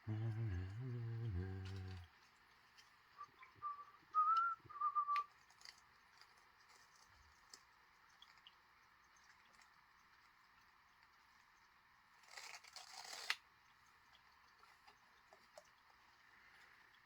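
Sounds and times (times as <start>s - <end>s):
person whistling a tune: 3.2s - 5.3s
faint small clicks and taps: 13.2s - 17.0s.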